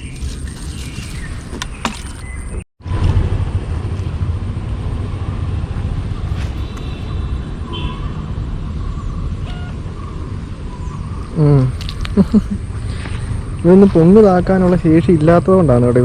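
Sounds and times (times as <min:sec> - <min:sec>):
steady low rumbling noise: 0:02.8 - 0:06.7, 0:08.3 - 0:16.0.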